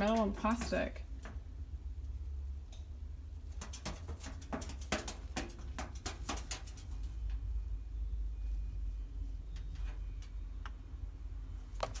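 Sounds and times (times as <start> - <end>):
chicken pecking at microwave: 3.5 - 7.1.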